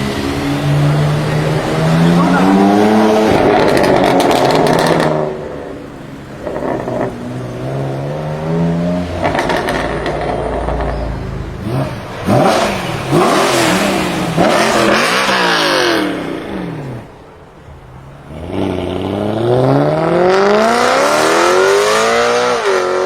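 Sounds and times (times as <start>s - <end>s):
car engine revving: 0.1s - 16.5s.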